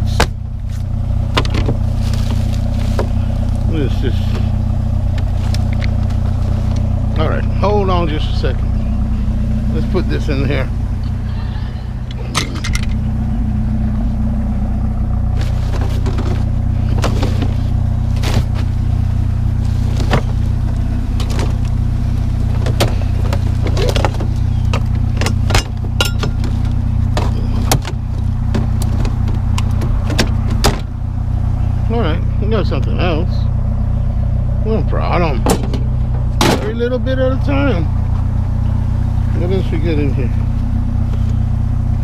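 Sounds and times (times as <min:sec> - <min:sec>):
vehicle engine idling: 0:00.0 - 0:42.0
fan parts clicking and knocking: 0:00.1 - 0:08.6, 0:15.3 - 0:18.8, 0:19.8 - 0:31.0, 0:35.2 - 0:37.0.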